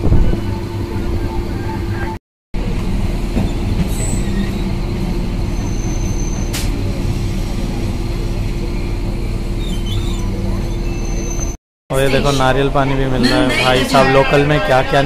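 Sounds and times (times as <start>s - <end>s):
train rumbling and humming: 0.0s - 11.6s.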